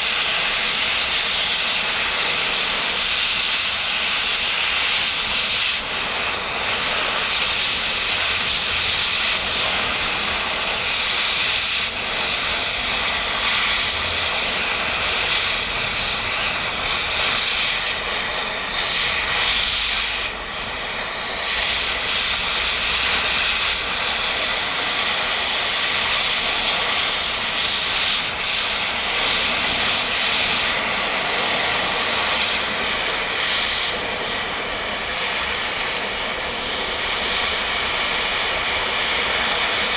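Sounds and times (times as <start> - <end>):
cutting torch hissing: 0.0 - 39.9.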